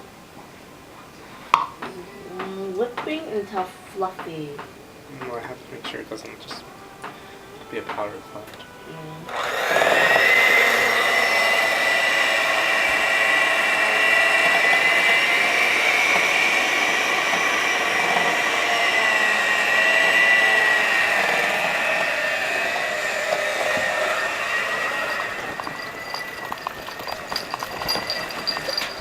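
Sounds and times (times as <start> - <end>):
electric mixer motor whine: 9.3 - 29.0.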